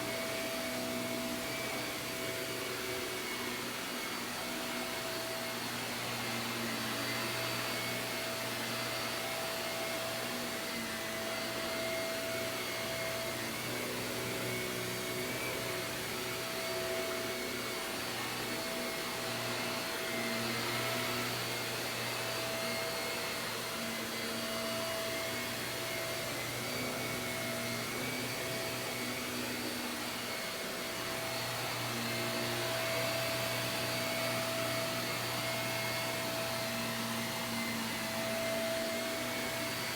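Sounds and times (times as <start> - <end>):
vacuum cleaner running on carpet: 0.0 - 39.9.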